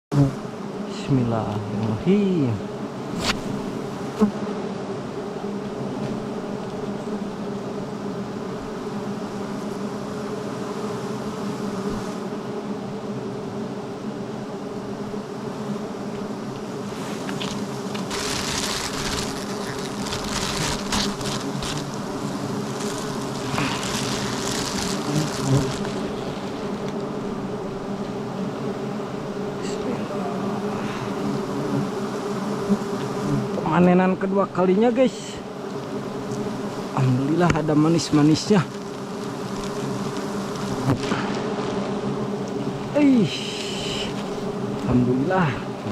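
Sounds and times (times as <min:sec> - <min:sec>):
honeybees buzzing: 0:00.1 - 0:45.9
rustling crackling noise: 0:15.8 - 0:28.3, 0:35.6 - 0:45.0.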